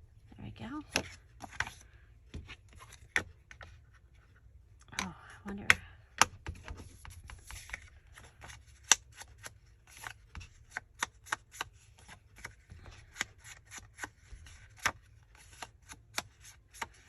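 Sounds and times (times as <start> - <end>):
paper handling: 6.6 - 17.0.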